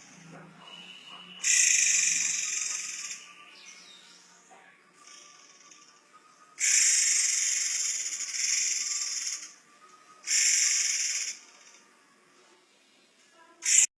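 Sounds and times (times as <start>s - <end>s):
bird giving shrill hissing calls: 0.7s - 3.4s, 6.6s - 9.6s, 10.2s - 11.7s, 13.6s - 13.9s.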